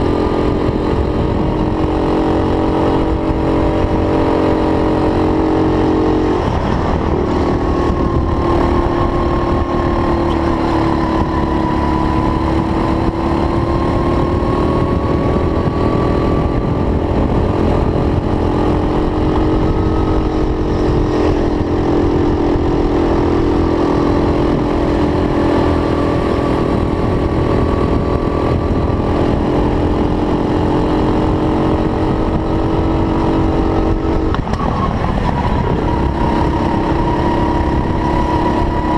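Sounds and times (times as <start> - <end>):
kart engine revving: 0.0 - 38.9
low rumble: 3.0 - 30.1.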